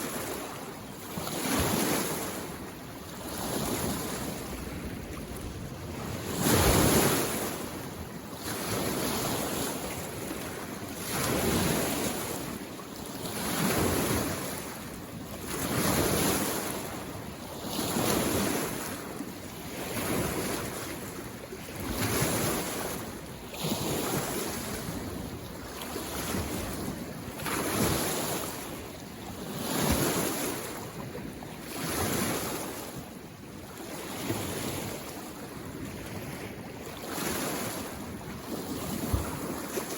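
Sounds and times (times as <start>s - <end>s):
small waves washing onto shore: 0.0s - 39.9s.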